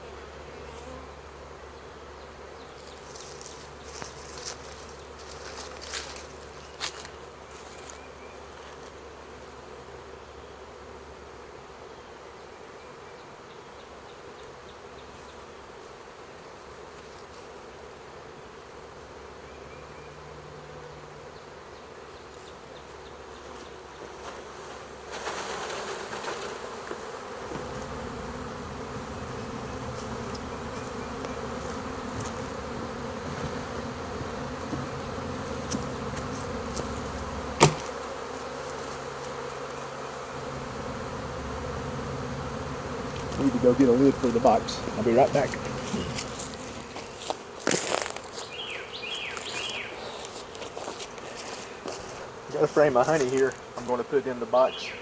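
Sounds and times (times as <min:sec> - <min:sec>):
bee swarm buzzing: 0:00.0 - 0:19.4, 0:20.2 - 0:55.0
sharp knock: 0:37.6 - 0:37.9.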